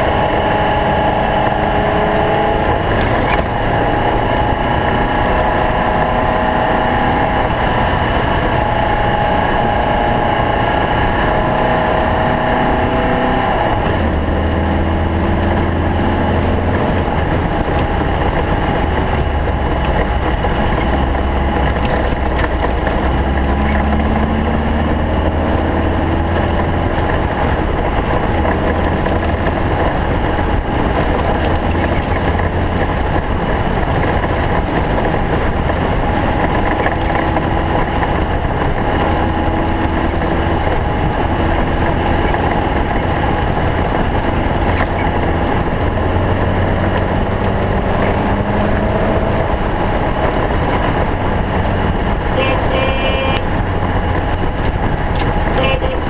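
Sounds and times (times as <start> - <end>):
race car engine running hard: 0.0 - 56.0
brief high tone: 52.4 - 53.4, 55.6 - 56.0.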